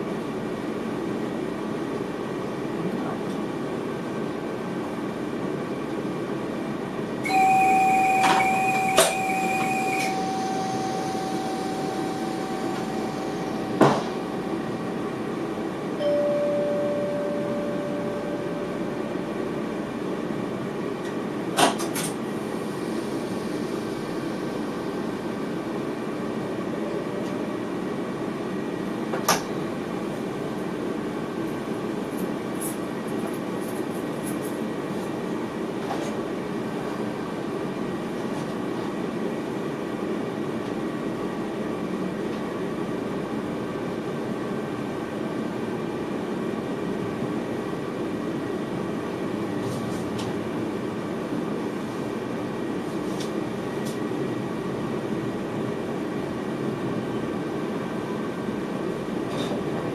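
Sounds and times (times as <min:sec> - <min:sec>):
train cab rumble: 0:02.6 - 0:27.8
electronic tones: 0:07.3 - 0:14.2.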